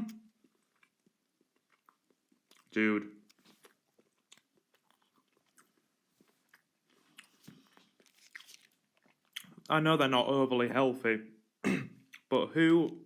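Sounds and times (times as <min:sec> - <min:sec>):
faint chewing: 0:00.0 - 0:09.7.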